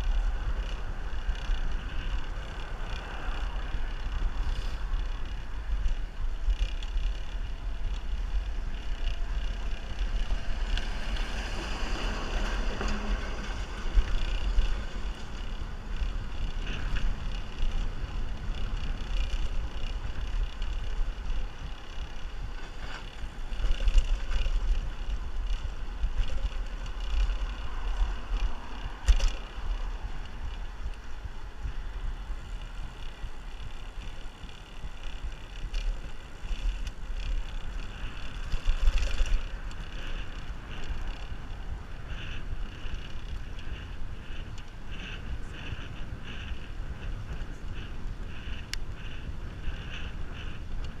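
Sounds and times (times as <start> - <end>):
rolling road noise: 0.0 - 51.0
wind buffeting microphone: 0.0 - 51.0.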